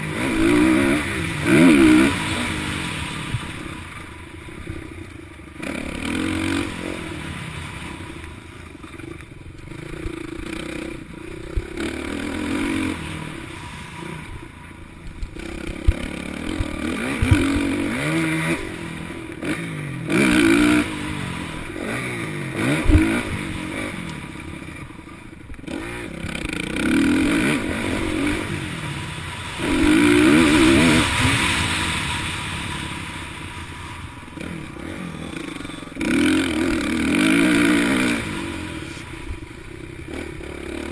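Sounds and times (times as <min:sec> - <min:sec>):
motocross bike engines revving: 0:00.0 - 0:40.9.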